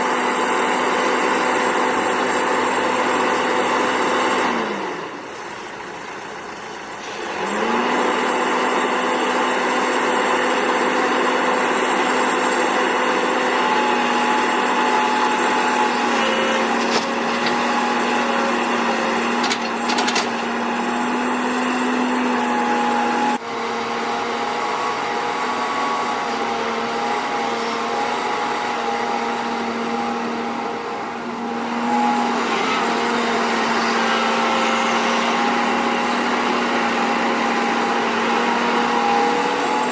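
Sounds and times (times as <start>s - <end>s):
heavy machinery diesel engine revving: 0.0s - 5.3s, 7.0s - 39.9s.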